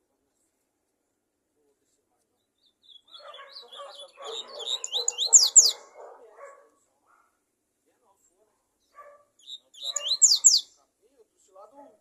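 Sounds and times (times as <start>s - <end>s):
songbird singing: 2.1s - 7.3s, 8.7s - 10.9s.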